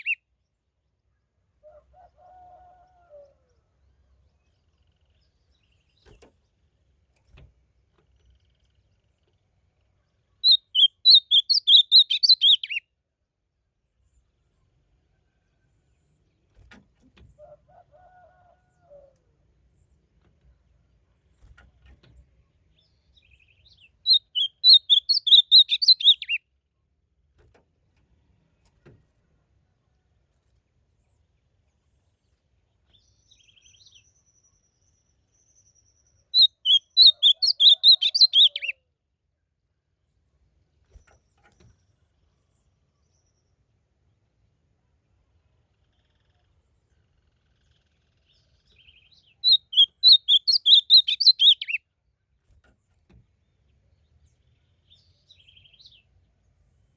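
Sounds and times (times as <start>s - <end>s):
bird singing warbled phrases: 0.0s - 0.2s, 8.2s - 12.8s, 22.2s - 26.4s, 32.6s - 38.8s, 45.5s - 51.9s.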